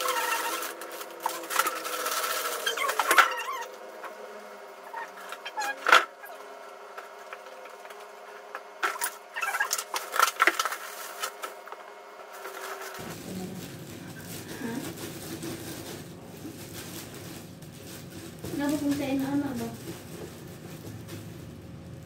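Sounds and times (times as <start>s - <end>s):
plastic packaging crinkling: 0.0s - 3.7s, 8.9s - 11.7s, 12.3s - 22.0s.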